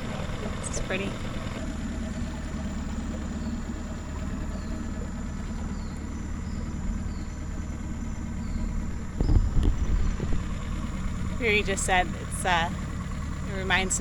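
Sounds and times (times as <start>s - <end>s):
low rumble: 0.0s - 14.0s
outboard motor idling: 0.0s - 14.0s.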